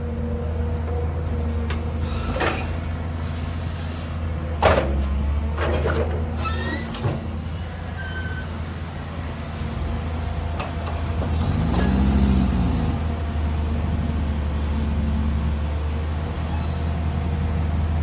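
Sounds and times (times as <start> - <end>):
diesel engine running: 0.0 - 18.0
short squeaks: 2.0 - 4.1, 5.6 - 8.6, 16.5 - 16.8.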